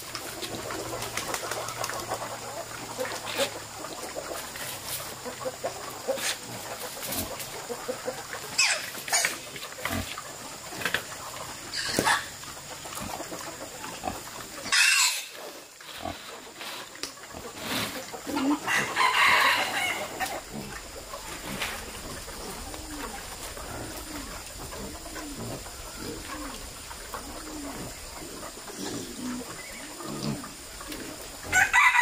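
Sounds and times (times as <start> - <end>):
pigs grunting and squealing: 5.4 - 11.0, 17.3 - 32.0.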